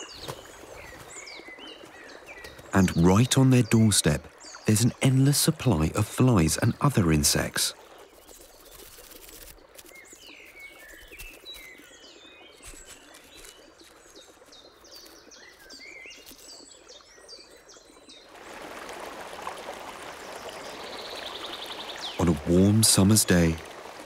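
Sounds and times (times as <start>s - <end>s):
wagtails chirping: 0.0s - 17.5s
stream water flowing: 0.0s - 24.0s.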